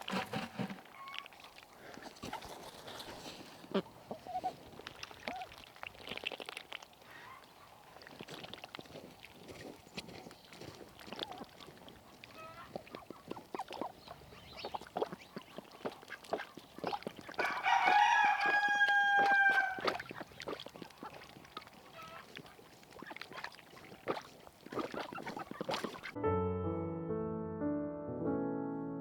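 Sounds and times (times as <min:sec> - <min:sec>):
rooster crowing: 0:17.4 - 0:19.8.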